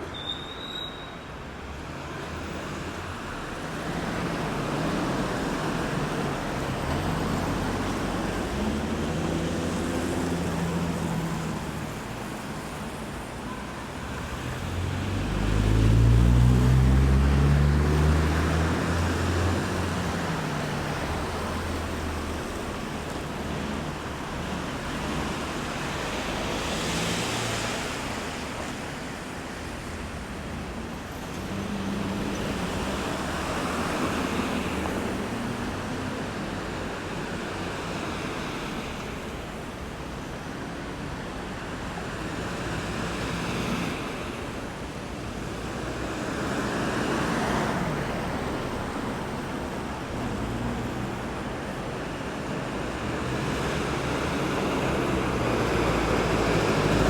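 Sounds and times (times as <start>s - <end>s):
short high squeak: 0.0s - 1.3s
road traffic passing: 0.0s - 57.0s.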